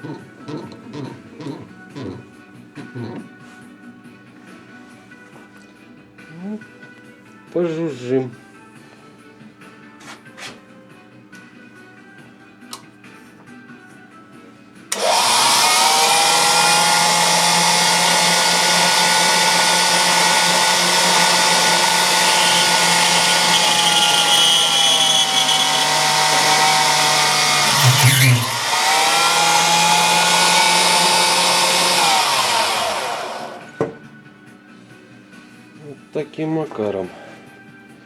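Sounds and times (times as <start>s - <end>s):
electric drill running: 14.9s - 33.8s.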